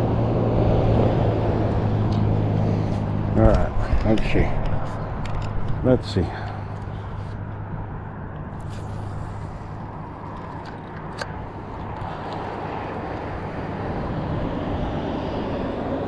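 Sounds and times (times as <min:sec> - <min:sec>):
distant engine running: 0:00.0 - 0:16.0.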